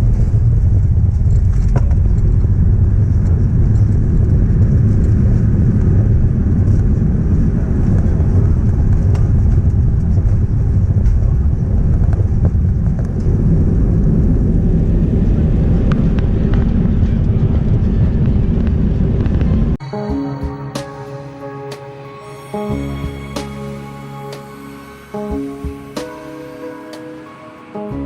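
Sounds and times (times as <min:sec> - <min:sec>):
jet engines and airflow rumble: 0:00.0 - 0:19.9.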